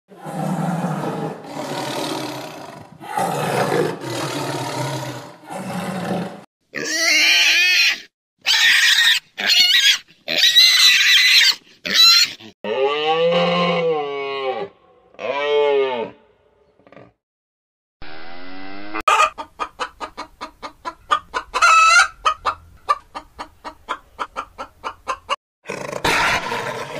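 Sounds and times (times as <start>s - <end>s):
tiger roaring and growling: 0.1s - 6.4s, 25.7s - 26.9s
pigs squealing: 6.0s - 14.0s, 25.7s - 26.9s
cow mooing: 12.7s - 16.2s.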